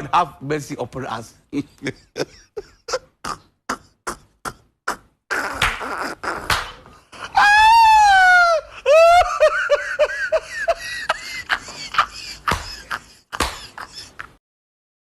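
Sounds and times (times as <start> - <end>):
high-pitched voice crying out: 7.3 - 9.2.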